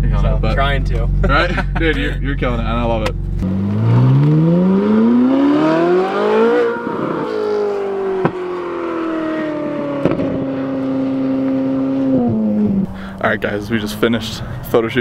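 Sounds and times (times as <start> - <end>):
sports car engine revving: 0.0 - 14.7
sharp exhaust cracks: 2.6 - 14.6.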